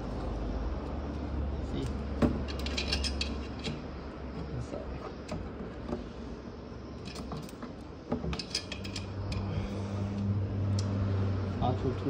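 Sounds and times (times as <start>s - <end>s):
steady low hum: 0.0s - 12.0s
metallic clicks of hose fittings: 1.8s - 3.9s, 7.0s - 11.0s.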